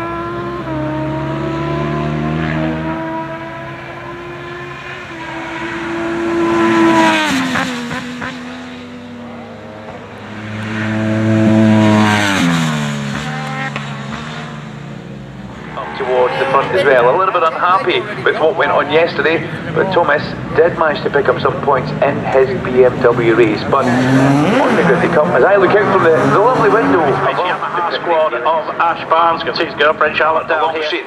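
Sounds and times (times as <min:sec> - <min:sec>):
racing motorcycles passing: 0:00.0 - 0:31.0.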